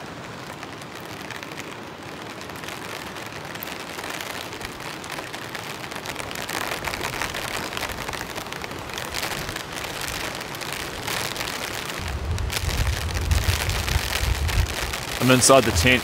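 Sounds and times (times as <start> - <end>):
heavy rain falling: 0.0 - 16.0
deep low rumble: 12.0 - 16.0.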